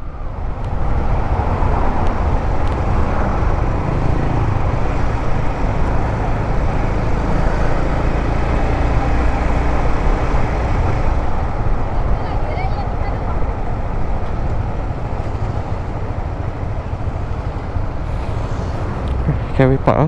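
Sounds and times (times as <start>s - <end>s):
motorcycle engine rumble: 0.0s - 20.0s.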